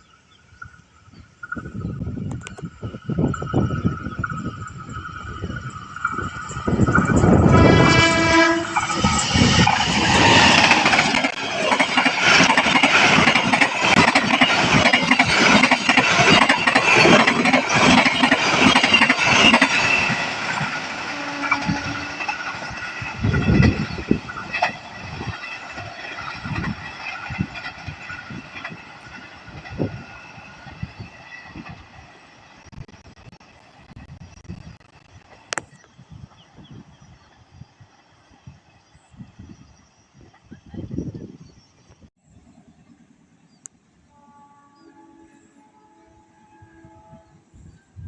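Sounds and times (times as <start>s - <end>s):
train rushing past: 2.7s - 32.7s
train horn: 7.2s - 9.1s, 21.0s - 22.5s, 44.0s - 48.0s.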